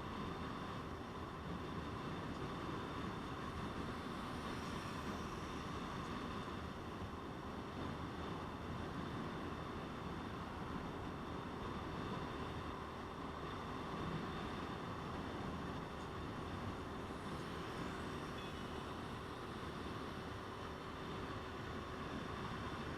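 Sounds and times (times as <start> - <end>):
wind and road noise: 0.0 - 22.9.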